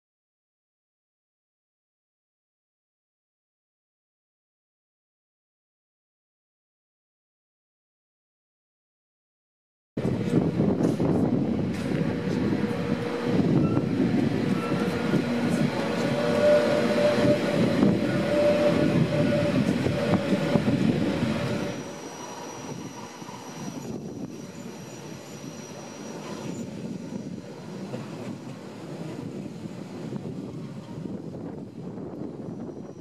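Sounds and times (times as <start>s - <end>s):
train wheels rumbling in tunnel: 10.0s - 33.0s.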